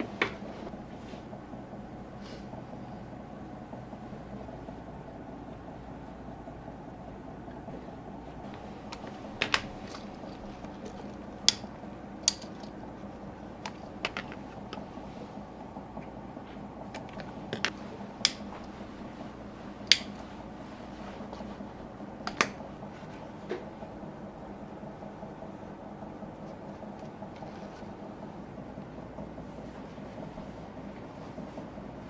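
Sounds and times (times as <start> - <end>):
steady low hum: 0.0 - 32.0
hand tools clicking and tapping: 8.5 - 12.8, 13.6 - 14.8, 19.9 - 20.2.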